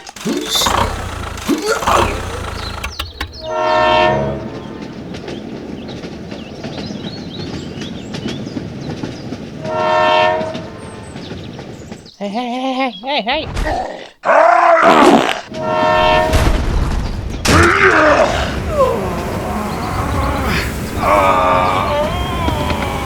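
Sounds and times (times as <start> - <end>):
rumbling background: 0.0 - 6.0, 15.6 - 23.0
loud horn toots: 0.1 - 5.0, 9.6 - 10.7, 15.5 - 16.6.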